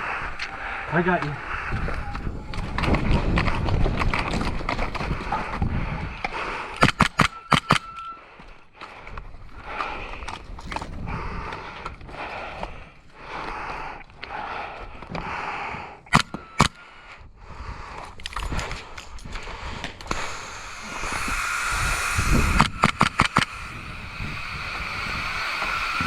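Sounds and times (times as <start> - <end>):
air guns firing: 6.8 - 7.9, 16.1 - 16.9, 20.1 - 26.0
steady hiss: 20.1 - 26.0.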